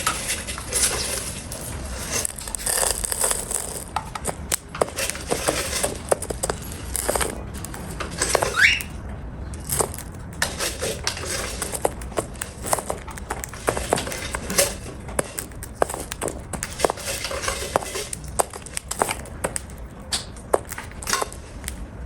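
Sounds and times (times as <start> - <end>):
bird squeak: 8.4 - 9.0.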